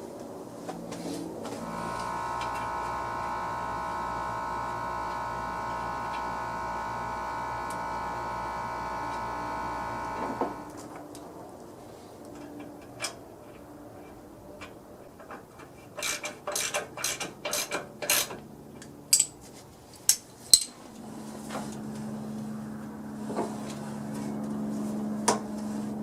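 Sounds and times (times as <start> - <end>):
steady low hum: 0.5 - 11.6, 20.8 - 26.0
metal tools clinking and rattling: 19.1 - 19.4.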